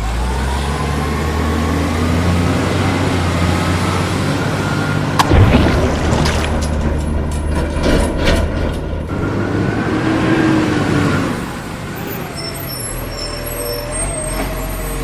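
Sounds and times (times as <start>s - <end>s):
heavy vehicle engine running: 0.0s - 15.0s.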